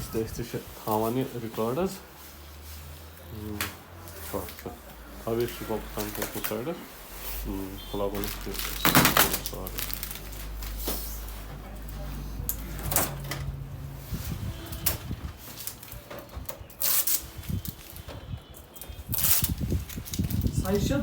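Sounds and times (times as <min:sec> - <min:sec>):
packaging rustling: 0:00.5 - 0:11.6, 0:18.7 - 0:20.8
packaging knocks and clicks: 0:08.2 - 0:11.0.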